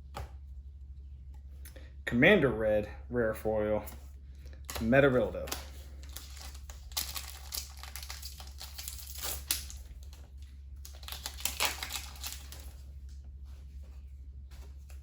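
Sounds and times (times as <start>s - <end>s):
steady low hum: 0.0s - 15.0s
trading cards clicking and rustling: 4.4s - 12.8s.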